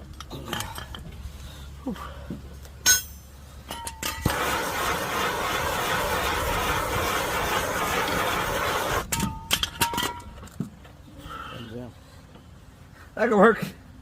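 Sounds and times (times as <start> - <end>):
sharp metal clinks: 2.8 - 4.2.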